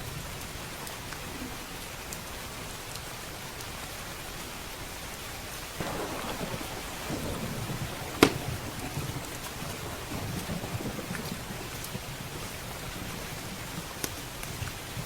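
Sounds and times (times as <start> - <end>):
steady rain: 0.0 - 15.0
sharp thunder crack: 5.8 - 13.5
thunder rumble: 5.8 - 15.0.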